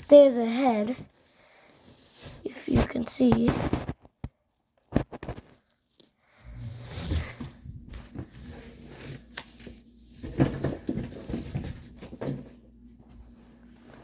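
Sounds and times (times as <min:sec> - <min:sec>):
steady low hum: 0:06.4 - 0:14.0
packaging rustling and knocking: 0:09.1 - 0:12.6.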